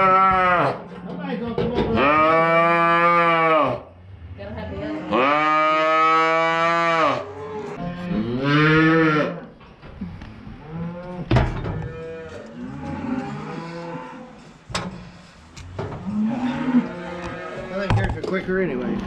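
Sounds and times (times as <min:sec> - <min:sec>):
cattle mooing: 0:00.0 - 0:00.8, 0:01.9 - 0:03.9, 0:04.5 - 0:09.5, 0:10.6 - 0:14.4, 0:15.8 - 0:17.9.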